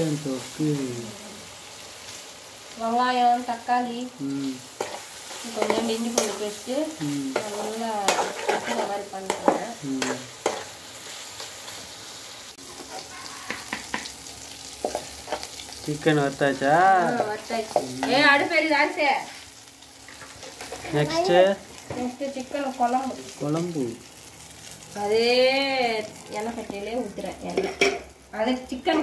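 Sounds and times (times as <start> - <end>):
chicken sizzling in a pan: 0.0 - 29.0
metal spoon scraping a pan: 4.7 - 11.8, 12.6 - 14.1
person talking: 7.0 - 7.4.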